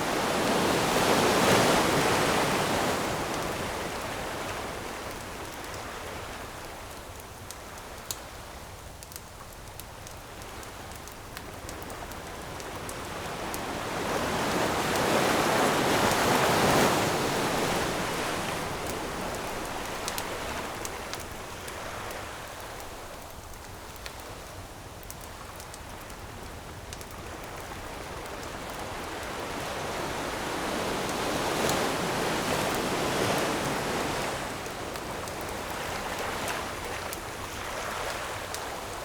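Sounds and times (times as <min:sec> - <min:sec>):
ocean surf washing ashore: 0:00.0 - 0:07.2, 0:11.5 - 0:24.7, 0:26.2 - 0:39.0
campfire crackling pops: 0:17.1 - 0:28.8.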